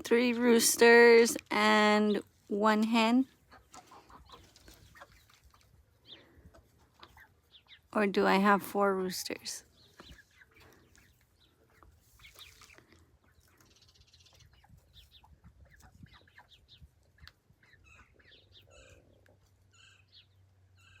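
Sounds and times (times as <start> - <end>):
chicks peeping and chirping: 3.3 - 7.9, 9.5 - 21.0.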